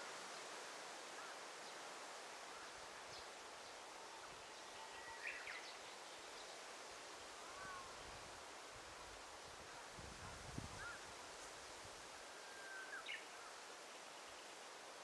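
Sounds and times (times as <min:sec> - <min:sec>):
rustling foliage: 0:00.0 - 0:15.0.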